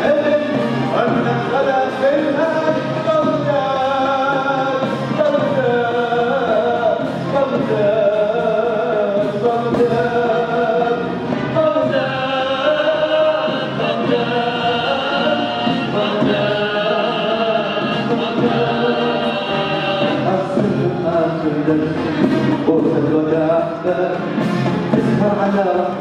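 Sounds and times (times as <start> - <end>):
choir singing held notes: 0.0 - 26.0
symphony orchestra: 0.0 - 26.0.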